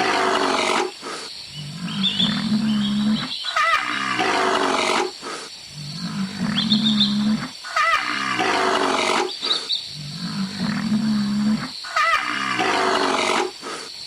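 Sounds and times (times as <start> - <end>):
large animal roaring: 0.0 - 0.9.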